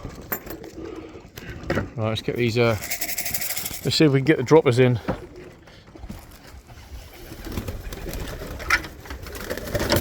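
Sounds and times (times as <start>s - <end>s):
pigeons cooing: 0.0s - 1.6s.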